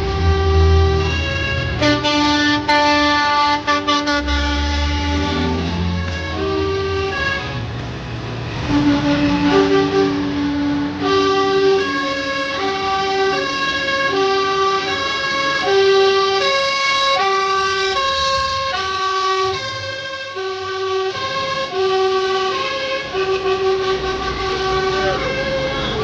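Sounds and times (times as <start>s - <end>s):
two-tone siren: 10.9s - 26.0s.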